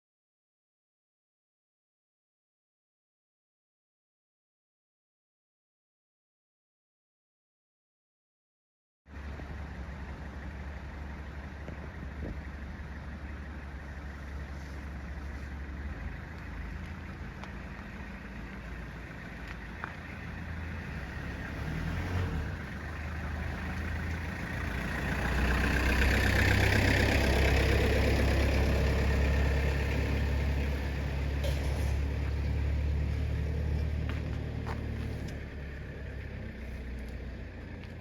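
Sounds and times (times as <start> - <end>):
vehicle passing by: 11.9 - 38.0.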